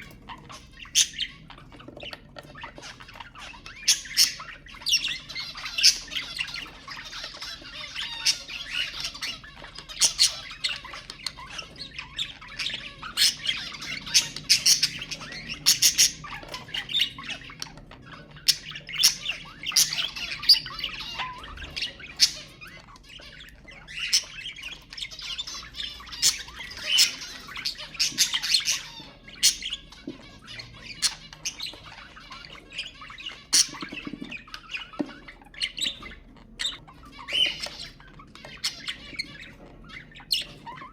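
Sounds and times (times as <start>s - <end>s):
bird squawks and chirps: 0.0s - 40.9s
budgerigars chattering and warbling: 0.0s - 40.9s.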